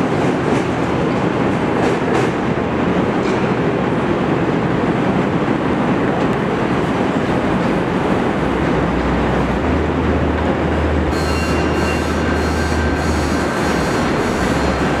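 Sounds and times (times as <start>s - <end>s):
train rumbling on steel track: 0.0s - 15.0s
high-pitched wheel squeal: 11.1s - 15.0s.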